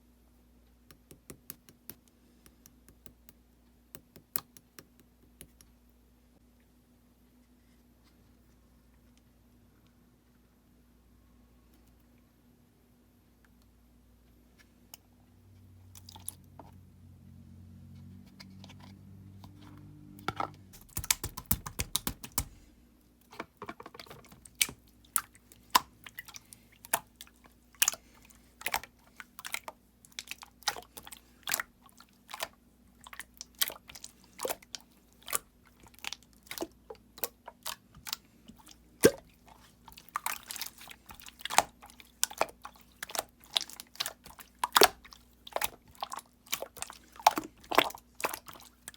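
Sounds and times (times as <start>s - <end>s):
slime clicking and popping: 20.8s - 22.6s.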